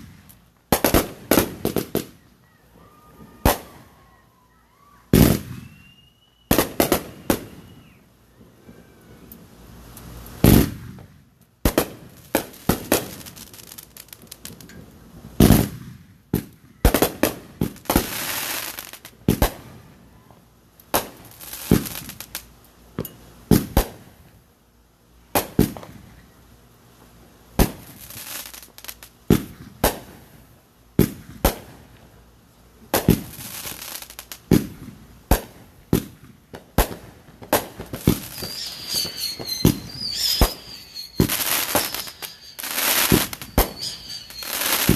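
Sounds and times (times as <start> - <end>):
fireworks bangs: 0.0 - 2.2, 2.8 - 4.0, 4.8 - 8.0, 10.3 - 14.7, 15.3 - 19.8, 20.9 - 22.5, 27.6 - 30.4, 31.0 - 31.9, 32.9 - 44.9
high firework whistle: 1.7 - 9.4, 37.6 - 44.9
hissing crackle: 11.7 - 14.8, 36.6 - 44.9.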